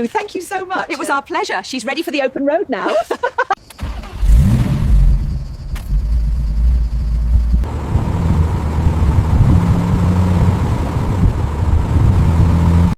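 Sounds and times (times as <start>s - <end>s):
road noise: 3.6s - 12.9s
car engine rumbling: 3.8s - 12.9s.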